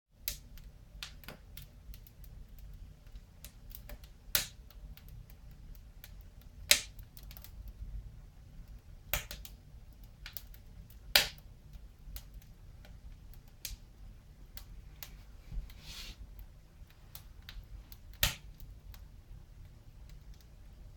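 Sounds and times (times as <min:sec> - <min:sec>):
wood fire crackling: 0:00.2 - 0:20.9.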